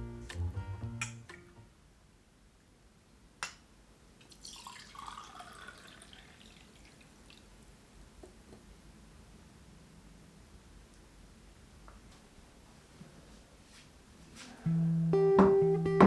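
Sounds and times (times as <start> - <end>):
faint water dripping: 4.2 - 8.2.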